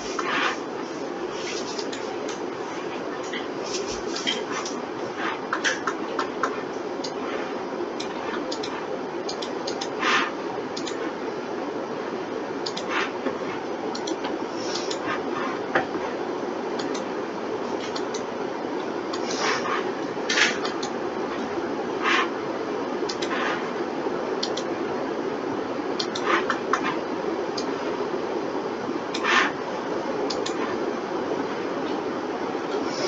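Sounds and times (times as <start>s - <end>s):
steady background hum: 0.0s - 33.0s
mouse and keyboard clicks: 8.0s - 10.0s, 12.7s - 12.9s, 14.0s - 14.2s, 26.0s - 26.8s, 30.3s - 30.6s.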